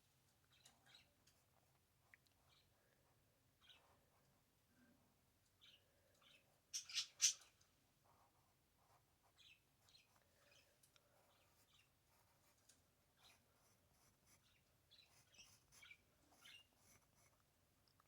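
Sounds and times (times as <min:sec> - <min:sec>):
faint bird chirps: 0:00.4 - 0:01.2, 0:03.6 - 0:04.0, 0:04.7 - 0:07.6, 0:09.2 - 0:12.0, 0:13.1 - 0:17.3.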